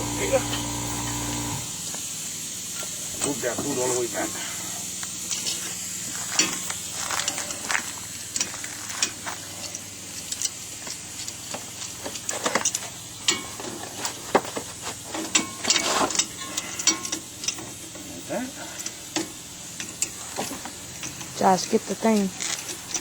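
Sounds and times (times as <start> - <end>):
hand tools clicking on metal: 5.0 - 14.1, 15.1 - 23.0.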